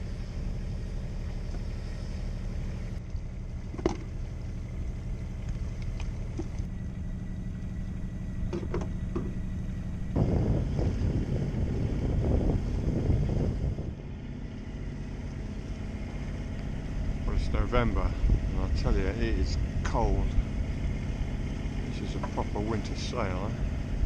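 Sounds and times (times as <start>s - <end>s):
boat engine running: 0.0s - 24.0s
light knocks: 8.5s - 9.4s.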